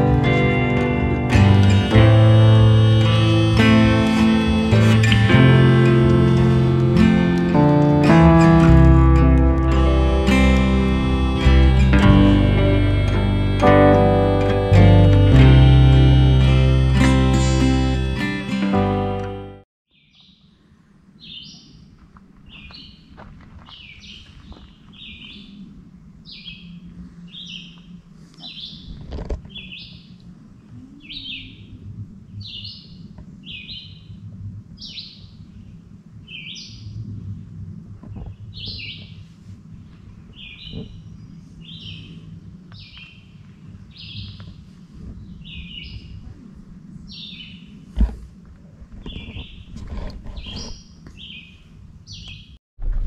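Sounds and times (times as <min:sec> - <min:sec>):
low steady hum: 0:00.0 - 0:19.6
songbird chirping: 0:01.3 - 0:34.2, 0:34.8 - 0:37.2, 0:38.1 - 0:47.9, 0:49.0 - 0:52.6.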